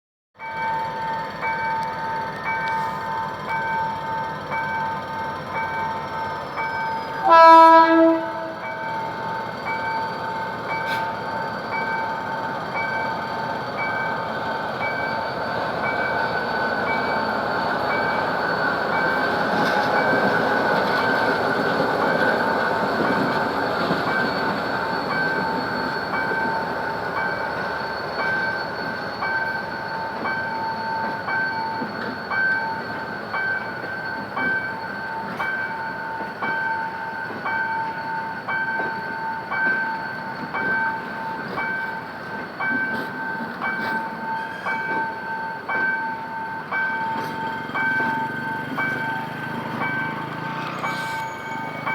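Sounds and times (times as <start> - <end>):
train rumbling past: 0.4 - 51.9
locomotive horn blast: 7.2 - 8.7.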